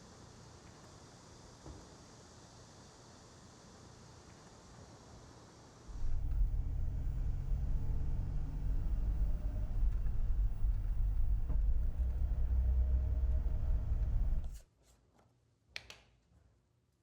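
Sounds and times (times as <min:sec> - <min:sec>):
low rumble with faint hum: 0:05.9 - 0:14.6.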